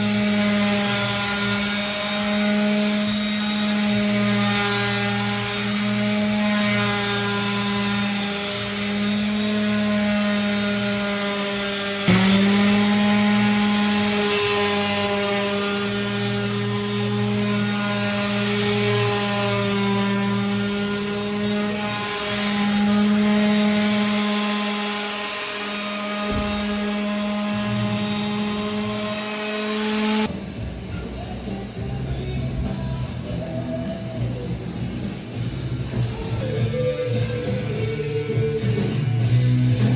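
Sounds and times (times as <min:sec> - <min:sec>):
electric power tool on wood: 0:00.0 - 0:30.3.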